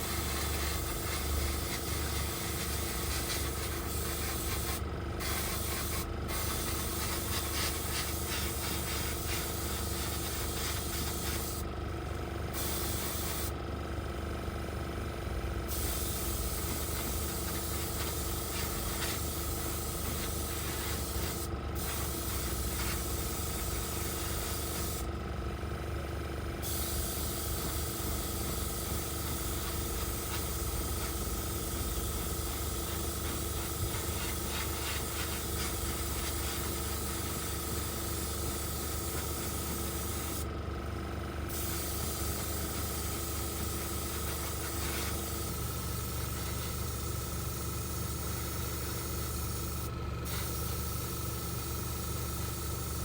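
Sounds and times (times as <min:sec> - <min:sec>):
paint spray hissing: 0:00.0 - 0:11.6, 0:12.6 - 0:13.5, 0:15.7 - 0:25.0, 0:26.6 - 0:40.4, 0:41.5 - 0:46.8, 0:49.6 - 0:50.9.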